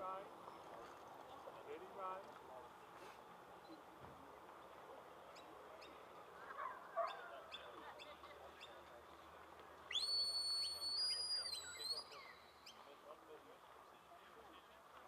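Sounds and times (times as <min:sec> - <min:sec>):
whistle command: 0:09.9 - 0:12.5.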